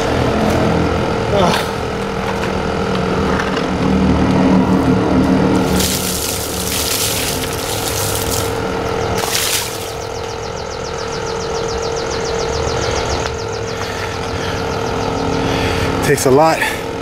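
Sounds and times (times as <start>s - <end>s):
mechanical hum: 0.0s - 17.0s
water spraying onto car: 5.6s - 8.6s, 9.2s - 10.0s.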